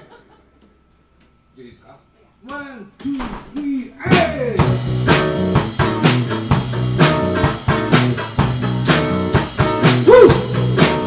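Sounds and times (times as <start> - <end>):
blues band playing rock and roll: 4.1 - 11.0.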